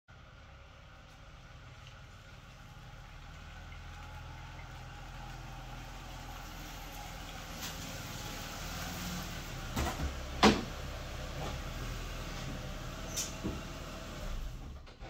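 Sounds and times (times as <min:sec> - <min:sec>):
car engine idling: 0:00.1 - 0:15.0
knocks and clunks: 0:09.7 - 0:13.8.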